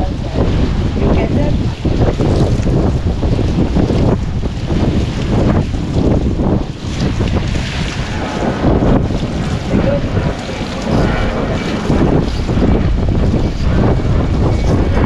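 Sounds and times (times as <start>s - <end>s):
ocean surf washing: 0.0s - 15.0s
wind buffeting microphone: 0.0s - 15.0s.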